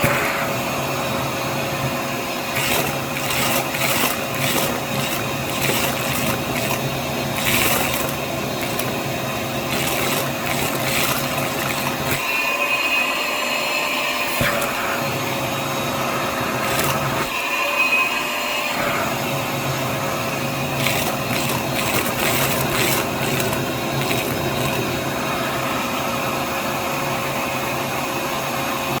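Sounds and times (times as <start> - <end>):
vacuum cleaner running: 0.0 - 28.3
small objects rattling: 2.5 - 12.3, 16.6 - 17.4, 20.8 - 25.0.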